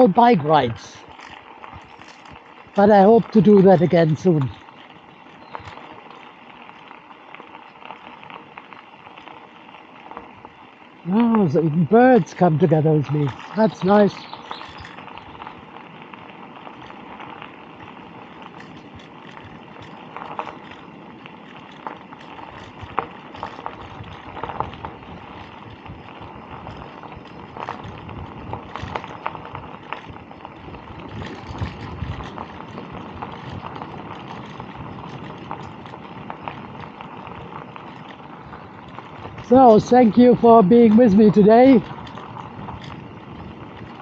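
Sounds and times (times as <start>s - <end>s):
bicycle tyres rolling: 0.0s - 44.0s
bike rattling and knocking: 1.0s - 11.6s, 12.4s - 44.0s.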